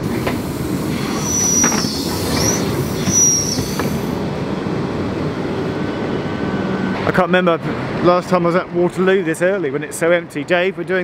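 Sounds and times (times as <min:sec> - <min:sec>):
train rumbling: 0:00.0 - 0:11.0
train wheels squealing: 0:00.9 - 0:04.2.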